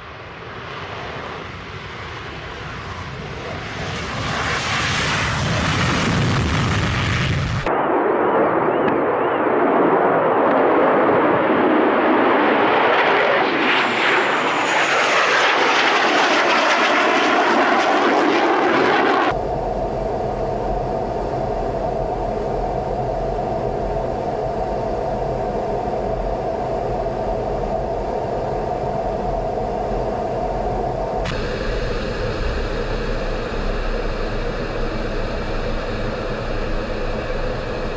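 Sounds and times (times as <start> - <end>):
jet aircraft passing: 0.0 - 37.9
steady humming drone: 19.1 - 37.9.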